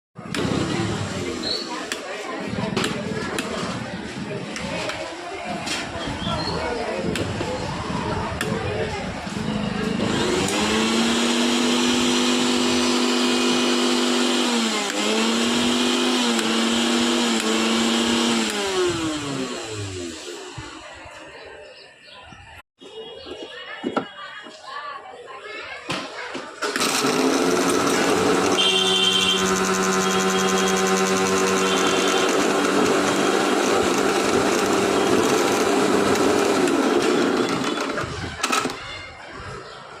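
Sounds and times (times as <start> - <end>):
mixer grinder motor whining: 0.3 - 1.6, 9.3 - 20.7, 26.6 - 38.8.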